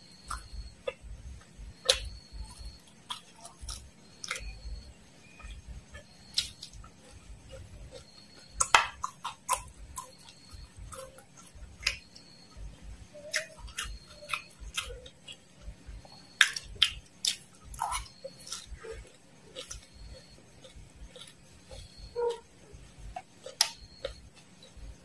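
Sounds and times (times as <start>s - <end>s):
crunchy food being chewed: 0.0s - 25.0s.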